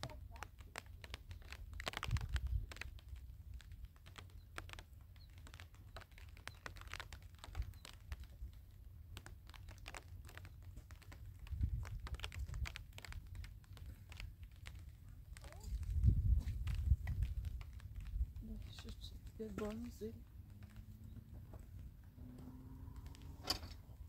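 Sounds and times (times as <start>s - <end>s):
irregular clicks and taps: 0.0s - 24.0s
wind buffeting microphone: 1.9s - 2.9s, 11.4s - 13.3s, 15.4s - 20.6s.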